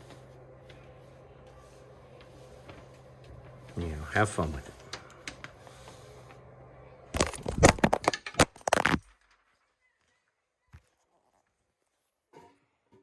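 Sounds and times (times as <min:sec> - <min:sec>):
rapid loud cracks and knocks: 0:07.2 - 0:09.4.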